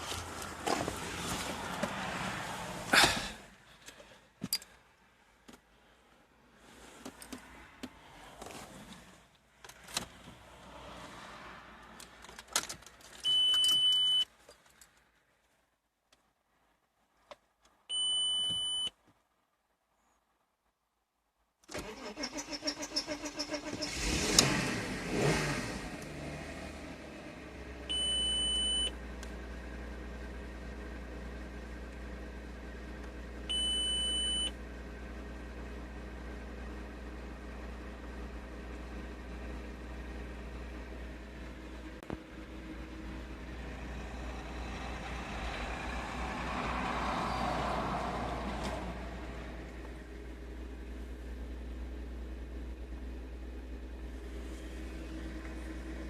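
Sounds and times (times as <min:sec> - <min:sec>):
car engine revving and idling: 0:00.0 - 0:03.7, 0:23.2 - 0:56.0
electronic beep: 0:27.9 - 0:28.9.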